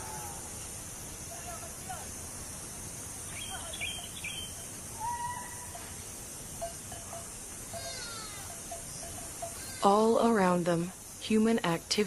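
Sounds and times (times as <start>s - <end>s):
outdoor ambience hiss: 0.0s - 12.0s
birds chirping and whistling: 3.3s - 5.7s.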